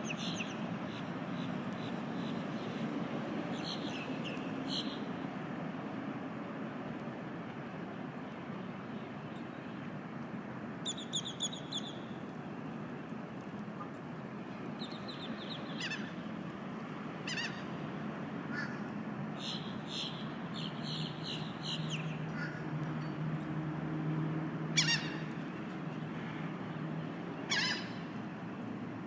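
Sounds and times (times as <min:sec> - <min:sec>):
gulls calling: 0:24.8 - 0:25.4, 0:27.4 - 0:28.2.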